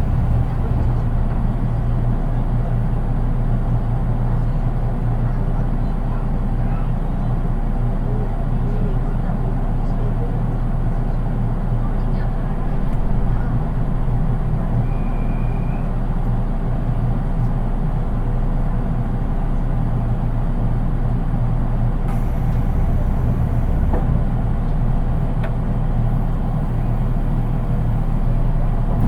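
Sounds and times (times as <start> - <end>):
train wheels rumbling on rail: 0.0 - 29.0
faint high squeal: 14.8 - 16.0.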